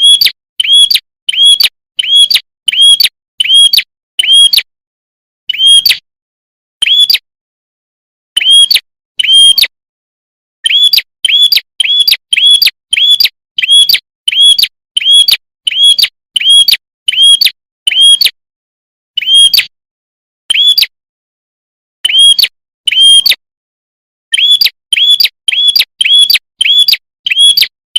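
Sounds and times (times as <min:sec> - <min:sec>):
high bird chirps: 0:00.0 - 0:04.6, 0:05.5 - 0:06.0, 0:06.8 - 0:07.3, 0:08.4 - 0:09.7, 0:10.6 - 0:18.4, 0:19.2 - 0:19.7, 0:20.5 - 0:21.0, 0:22.0 - 0:23.3, 0:24.3 - 0:27.8.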